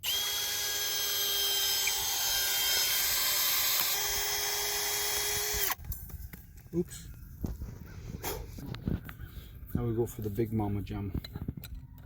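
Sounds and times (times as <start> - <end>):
power drill whining: 0.0 - 5.8.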